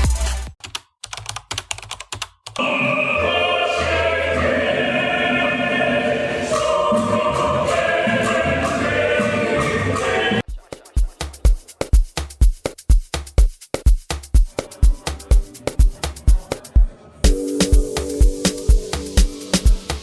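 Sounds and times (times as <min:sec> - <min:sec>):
music with choir-like singing: 0:02.6 - 0:10.5.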